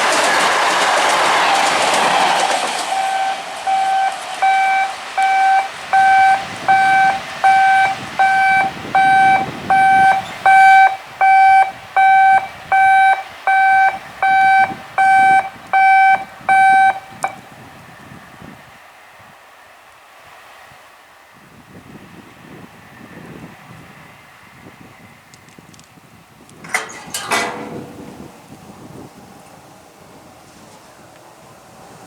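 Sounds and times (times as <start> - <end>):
passing train: 0.0 - 25.4, 26.5 - 32.0
electronic warning beeps: 2.9 - 17.4.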